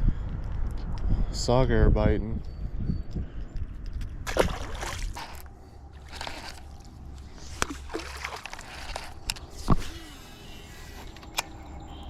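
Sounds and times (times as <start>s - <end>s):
water splashing and sloshing: 4.0s - 10.0s.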